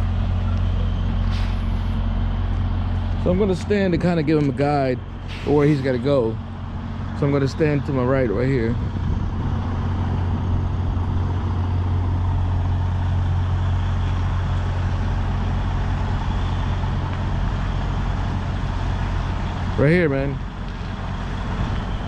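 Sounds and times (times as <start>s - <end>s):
truck diesel engine running: 0.0s - 22.0s.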